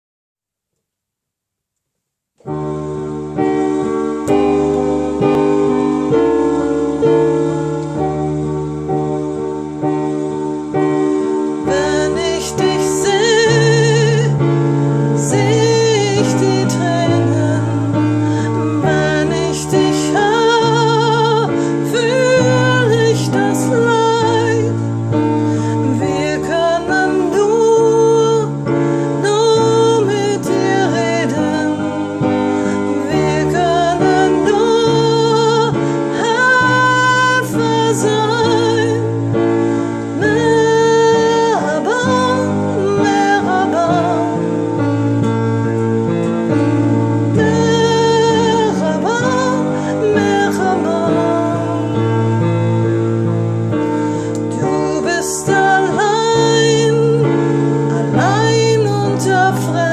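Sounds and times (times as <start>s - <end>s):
held keyboard chords: 2.4s - 59.9s
woman singing with vibrato: 11.6s - 24.8s, 25.6s - 39.2s, 40.2s - 44.9s, 46.5s - 52.8s, 54.5s - 59.9s.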